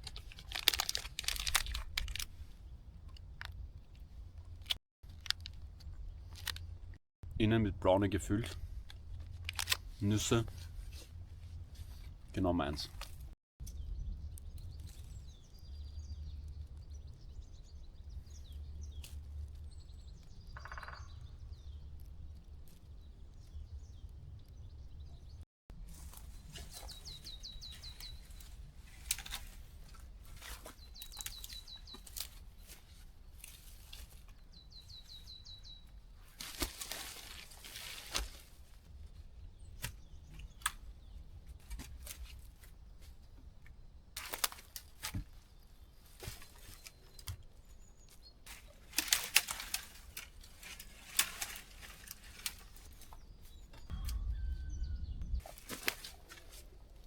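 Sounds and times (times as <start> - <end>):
bird trilling: 20.5 - 21.5
rustling: 25.8 - 39.2, 44.2 - 53.9, 55.4 - 57.0.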